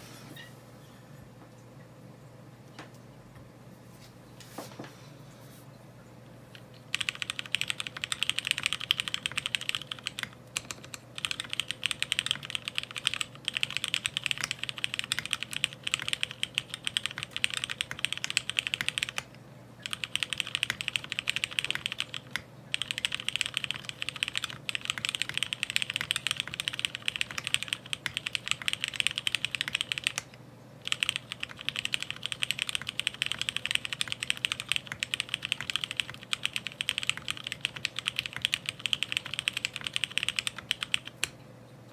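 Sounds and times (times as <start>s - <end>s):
mechanical keyboard typing: 6.9s - 41.4s.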